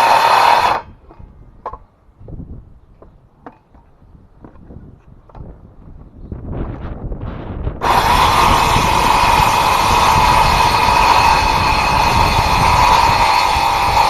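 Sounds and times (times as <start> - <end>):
circular saw whining: 0.0 - 1.8, 7.8 - 14.0.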